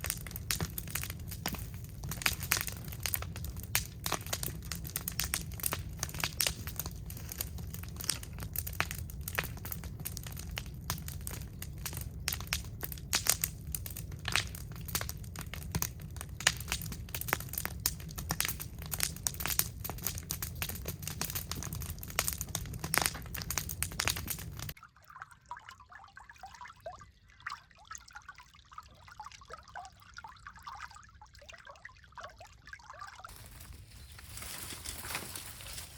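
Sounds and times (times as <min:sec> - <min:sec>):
low rumble of fire: 0:00.0 - 0:24.8, 0:33.3 - 0:35.9
wood fire crackling and popping: 0:00.0 - 0:24.8, 0:33.3 - 0:35.9.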